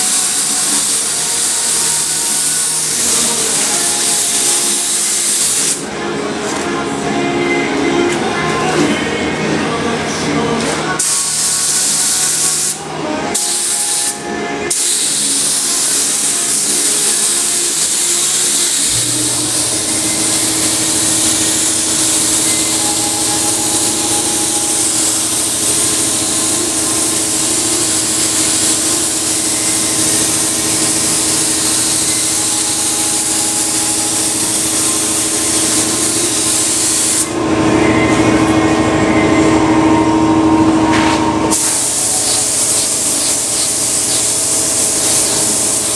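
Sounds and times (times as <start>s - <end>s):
spray gun hissing: 0.0s - 5.8s, 11.0s - 12.8s, 13.4s - 37.3s, 41.5s - 45.9s.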